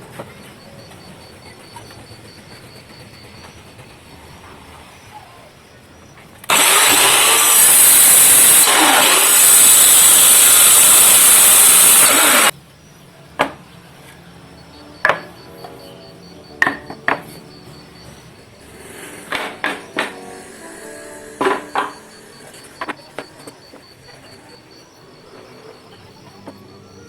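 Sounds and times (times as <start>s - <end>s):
power tool cutting wood: 6.5s - 12.5s, 18.9s - 23.5s
faint background music: 12.5s - 27.0s.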